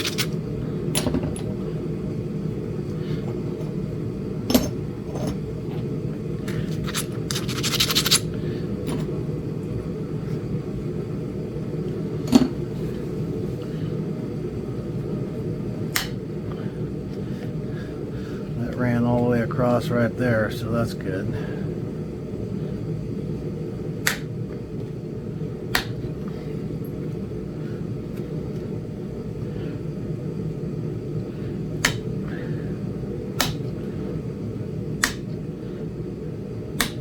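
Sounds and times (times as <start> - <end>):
steady low hum: 0.0 - 37.0
stone knapping clicks: 24.0 - 24.3, 31.8 - 32.1, 33.4 - 33.6, 35.0 - 35.3.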